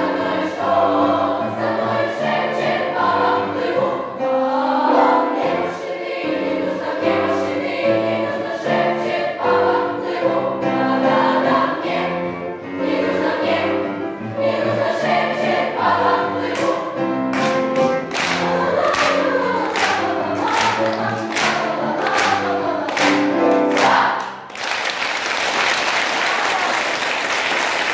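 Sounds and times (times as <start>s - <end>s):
choir singing: 0.0s - 24.5s
sharp rhythmic beats: 17.4s - 24.5s.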